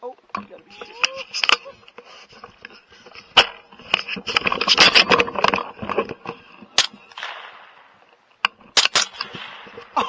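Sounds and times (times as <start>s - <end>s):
gear and clothing rustling: 0.5s - 7.1s
sharp crack: 6.7s - 10.0s.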